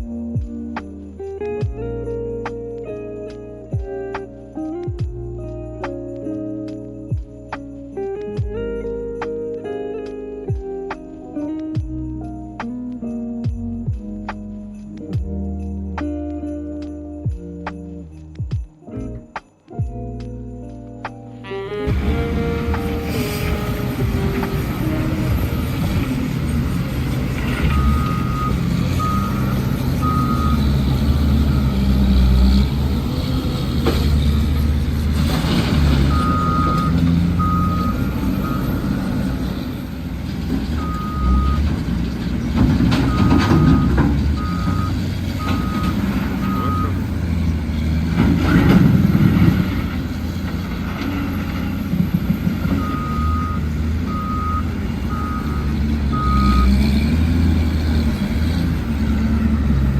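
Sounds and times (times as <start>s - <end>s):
diesel engine running: 21.8s - 59.9s
truck reversing alarm beeps: 21.9s - 39.9s, 40.5s - 47.5s, 48.1s - 59.7s.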